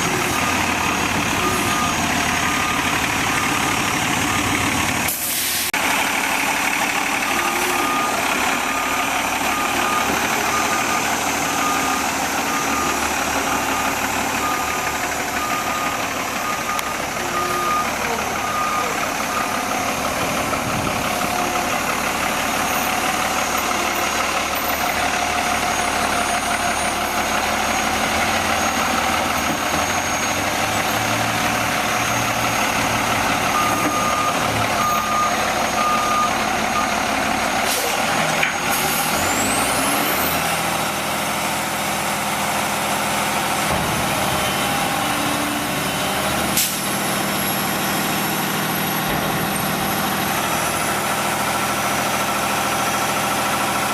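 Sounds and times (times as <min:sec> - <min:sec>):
garbage truck running: 0:00.0 - 0:53.9
reversing beeper beeps: 0:00.1 - 0:04.8, 0:07.2 - 0:37.9.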